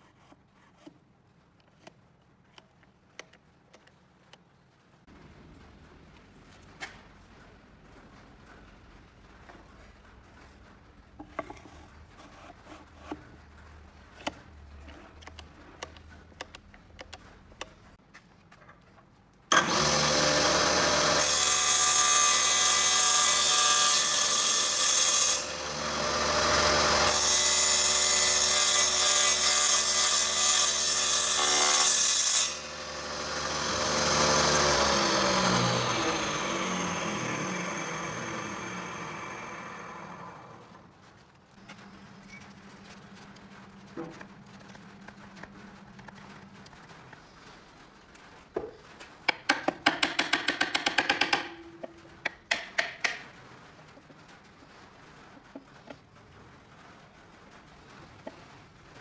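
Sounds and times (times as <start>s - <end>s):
power tool motor working wood: 19.5s - 40.8s.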